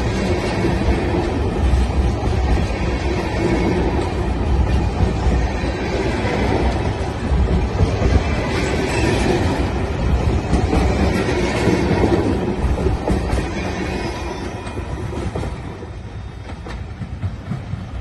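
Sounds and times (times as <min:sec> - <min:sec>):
freight train rolling past: 0:00.0 - 0:18.0.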